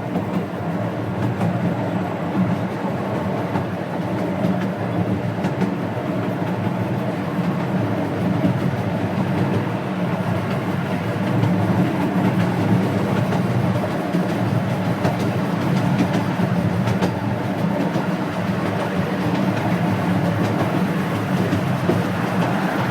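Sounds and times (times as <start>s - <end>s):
steam locomotive rumbling: 0.0s - 22.9s
wheels clicking on rails: 10.4s - 22.9s.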